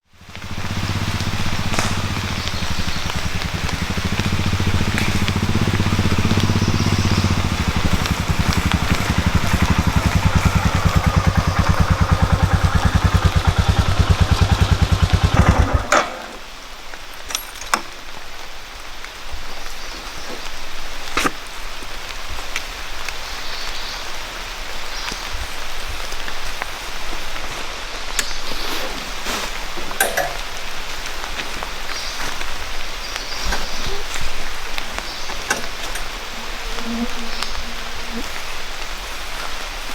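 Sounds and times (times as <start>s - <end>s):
motorcycle engine thumping: 0.0s - 16.6s, 28.2s - 39.5s
steady rain: 0.0s - 39.9s
sharp drips: 0.2s - 15.7s.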